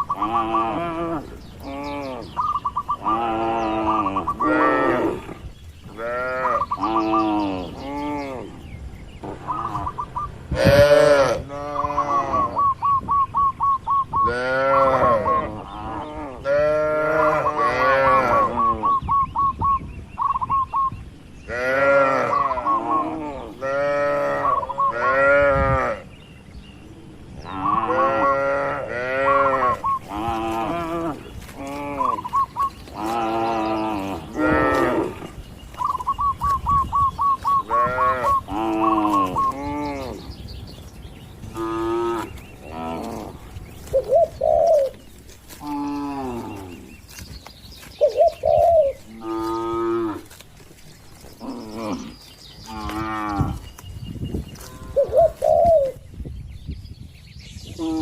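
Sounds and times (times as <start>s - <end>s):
cattle mooing: 0.0s - 2.3s, 10.5s - 12.6s, 27.5s - 35.4s, 37.6s - 40.2s, 41.4s - 43.4s, 49.0s - 50.4s.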